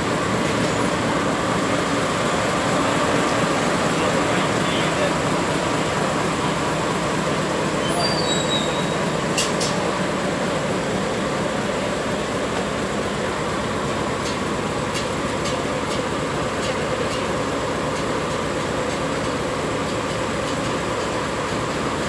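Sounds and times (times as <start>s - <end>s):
train carriage rumbling on rails: 0.0s - 22.0s
high squeals: 7.8s - 9.2s.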